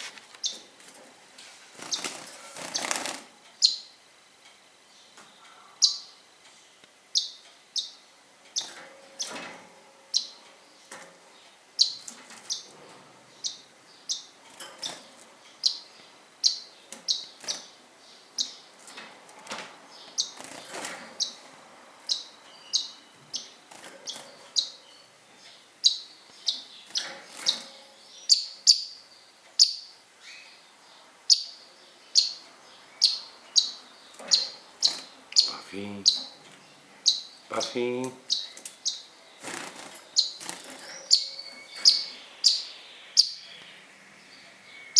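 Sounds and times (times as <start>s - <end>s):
pet birds chirping: 0.0s - 0.9s, 1.8s - 4.1s, 4.8s - 9.4s, 10.0s - 44.9s
soft rustles: 0.0s - 3.2s.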